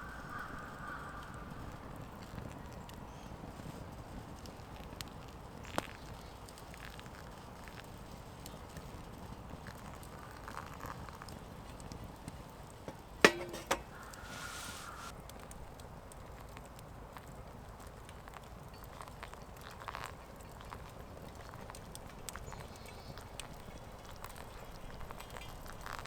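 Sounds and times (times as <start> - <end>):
sharp knocks: 13.3 - 15.1
brief scraping rustle: 13.4 - 15.1.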